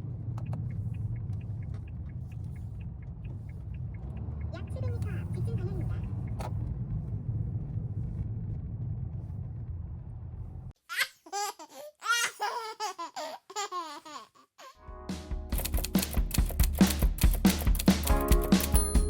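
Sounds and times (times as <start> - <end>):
road rumble inside car: 0.0 - 10.8.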